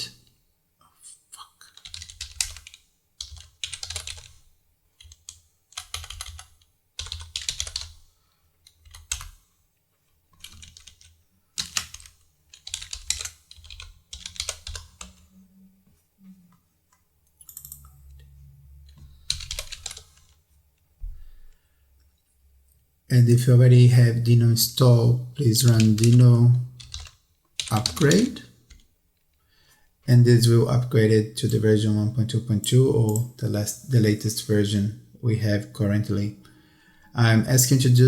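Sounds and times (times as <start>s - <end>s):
computer keyboard typing: 1.7s - 8.0s, 8.6s - 9.4s, 10.3s - 15.3s, 17.3s - 20.4s, 25.6s - 26.2s, 26.8s - 28.9s.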